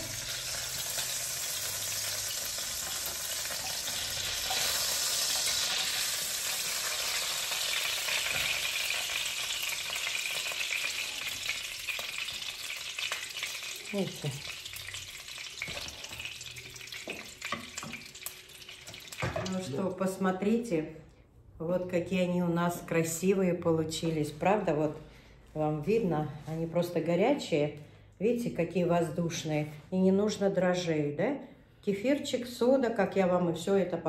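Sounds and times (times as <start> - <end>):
pies frying in hot oil: 0.0 - 19.7.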